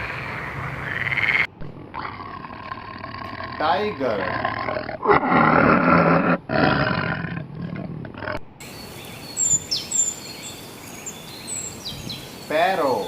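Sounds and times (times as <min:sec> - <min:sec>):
tiger roaring: 0:00.0 - 0:08.4
sparrows chirping: 0:08.6 - 0:13.0.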